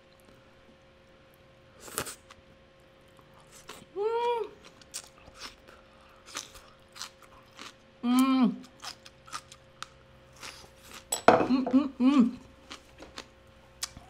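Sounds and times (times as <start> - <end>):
crisp chewing and crunching: 1.4 - 3.9, 4.5 - 11.1
voice humming: 8.0 - 8.6, 11.4 - 12.5.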